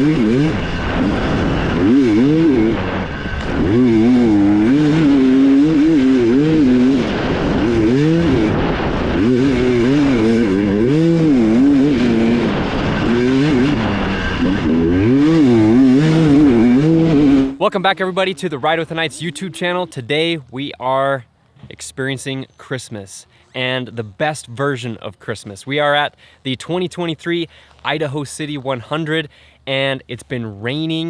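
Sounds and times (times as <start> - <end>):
dirt bike engine revving: 0.0 - 20.3.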